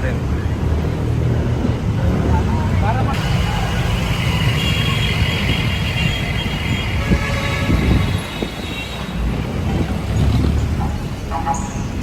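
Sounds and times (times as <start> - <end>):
vehicle engines rumbling: 0.0 - 12.0
steady high whine: 3.1 - 7.6.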